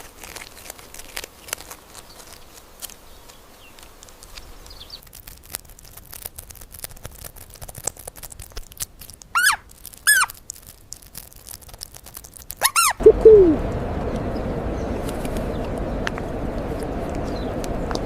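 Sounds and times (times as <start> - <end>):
steady hiss: 1.7 - 5.0
bird calling: 12.6 - 16.2.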